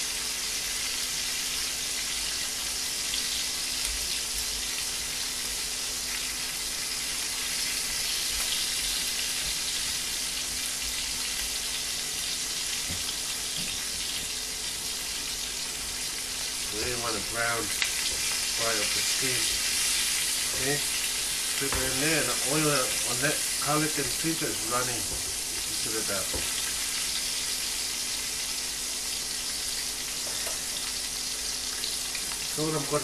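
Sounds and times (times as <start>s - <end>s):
food sizzling in a frying pan: 0.0s - 33.0s.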